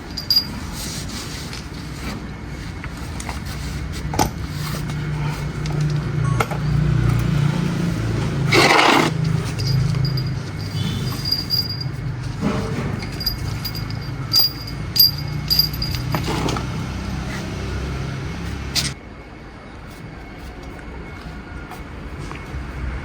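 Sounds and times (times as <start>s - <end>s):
car engine rumbling: 3.9s - 19.0s.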